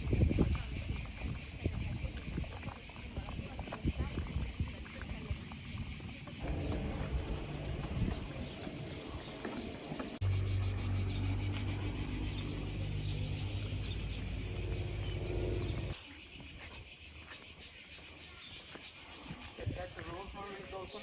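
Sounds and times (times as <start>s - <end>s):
crickets chirring: 0.0s - 21.0s
low steady drone: 6.4s - 16.0s.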